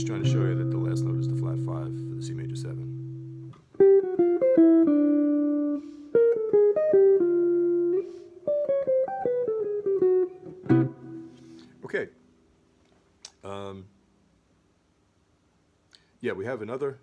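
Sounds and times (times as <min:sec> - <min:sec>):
guitar playing jazz lick: 0:00.0 - 0:11.9.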